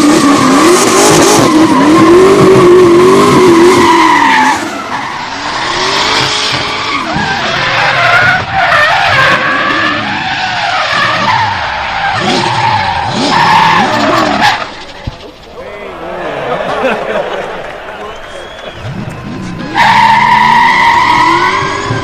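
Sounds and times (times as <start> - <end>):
car engine revving hard: 0.0 - 10.2, 10.8 - 14.8, 18.8 - 22.0.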